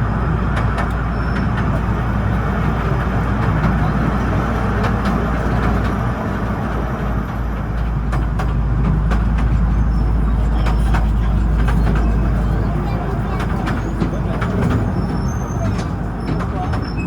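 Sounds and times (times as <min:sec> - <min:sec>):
train rumbling on track: 0:00.0 - 0:17.0
sharp clicks and knocks: 0:07.3 - 0:09.7.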